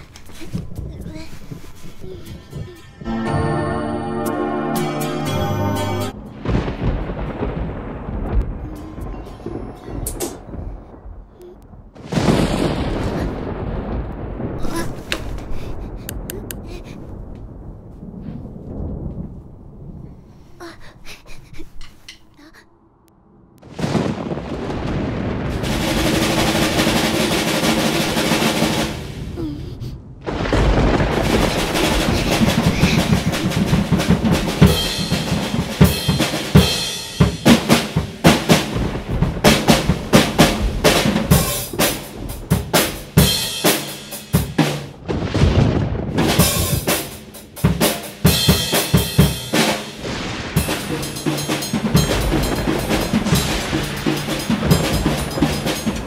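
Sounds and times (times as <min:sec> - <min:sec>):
drum roll: 0:00.0 - 0:11.3, 0:12.0 - 0:17.0, 0:23.7 - 0:29.6, 0:30.3 - 0:56.0
drum kit played with sticks: 0:04.2 - 0:06.2, 0:25.6 - 0:29.1, 0:31.2 - 0:44.9, 0:46.2 - 0:56.0.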